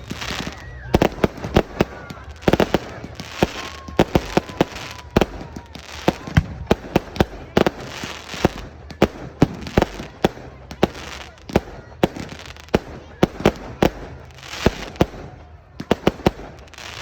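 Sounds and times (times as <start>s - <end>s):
faint firework whistle: 0.0s - 8.6s
fireworks bangs and crackles: 0.0s - 17.0s.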